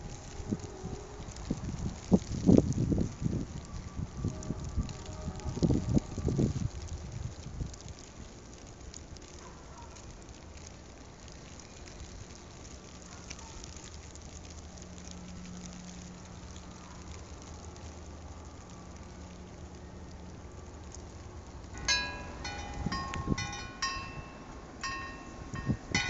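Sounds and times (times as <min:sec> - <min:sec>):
wind on microphone: 0:00.0 - 0:08.1, 0:21.8 - 0:26.0.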